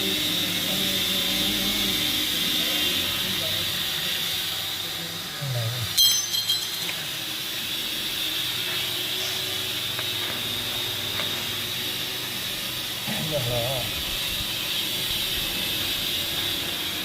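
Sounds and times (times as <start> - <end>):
sharp metallic clink: 6.0 - 7.1.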